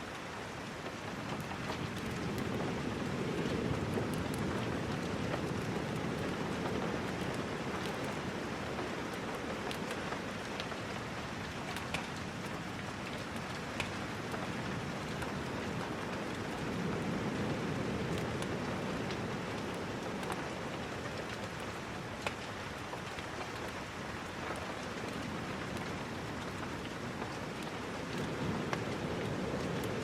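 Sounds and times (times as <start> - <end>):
steady rain: 0.0 - 30.0.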